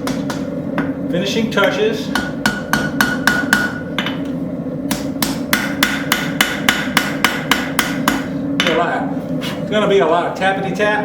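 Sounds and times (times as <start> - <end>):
hammer ringing on metal: 1.6 - 3.9, 4.9 - 8.8.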